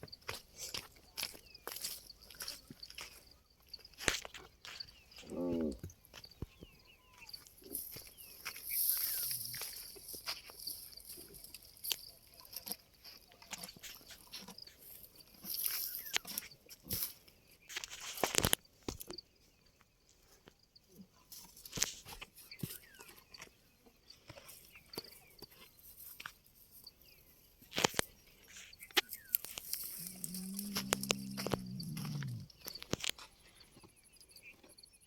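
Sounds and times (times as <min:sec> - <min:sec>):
camels chewing fodder: 0:07.0 - 0:17.2, 0:29.1 - 0:34.8
camel low call: 0:29.8 - 0:32.6.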